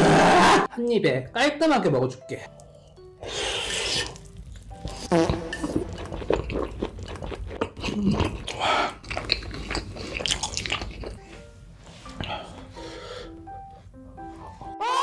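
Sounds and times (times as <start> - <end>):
wet chewing mouth sounds: 3.6 - 11.2.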